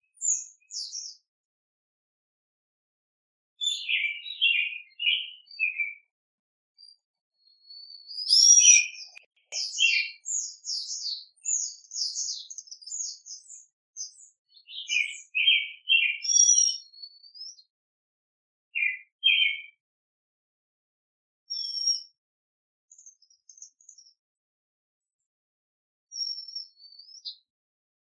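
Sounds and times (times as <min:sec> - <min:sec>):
bird chirps: 0:00.0 - 0:01.3, 0:03.6 - 0:06.1, 0:06.8 - 0:17.7, 0:18.8 - 0:19.8, 0:21.5 - 0:22.2, 0:22.9 - 0:24.2, 0:26.1 - 0:27.5
songbird warbling: 0:03.6 - 0:05.8, 0:08.2 - 0:12.4.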